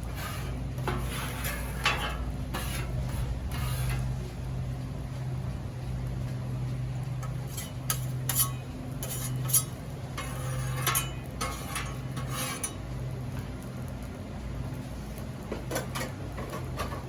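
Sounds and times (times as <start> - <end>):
metal tool scraping steel griddle: 0.0 - 4.2, 7.2 - 12.8
steady low hum: 0.0 - 17.0.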